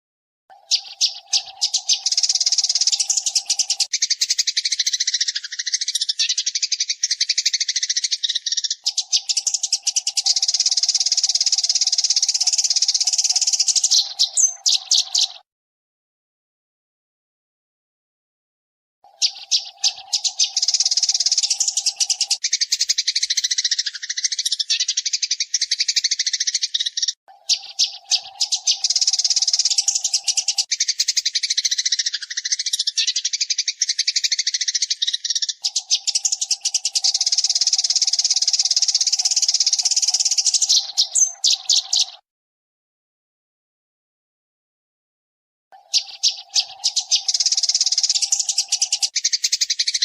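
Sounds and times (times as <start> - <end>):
sparrow chattering: 0.5 - 15.5, 19.1 - 42.2, 45.8 - 50.0.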